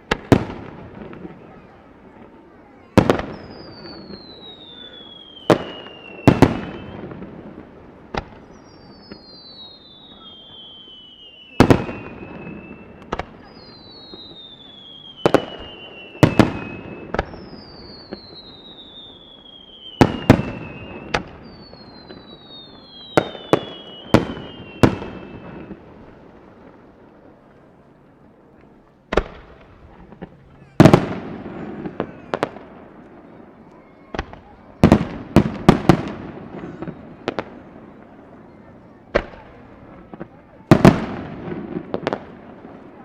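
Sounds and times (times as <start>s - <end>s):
firework booms echoing: 0.0s - 27.4s, 29.1s - 43.0s
firework whistles falling in pitch: 3.0s - 7.4s, 8.2s - 25.9s, 30.7s - 38.6s.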